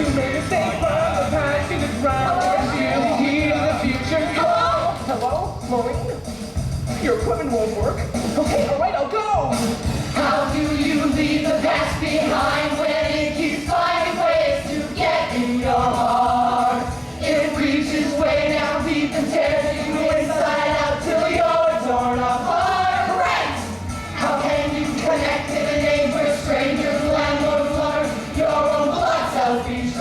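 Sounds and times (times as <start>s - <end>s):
chorus singing held notes: 0.0s - 4.9s, 10.1s - 30.0s
musical accompaniment: 0.0s - 30.0s.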